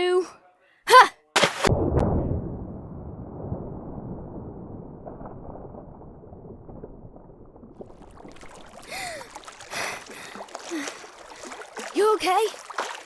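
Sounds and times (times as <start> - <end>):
water splashing: 1.4 - 2.5, 5.0 - 13.0
underwater bubbling and gurgling: 1.8 - 13.0.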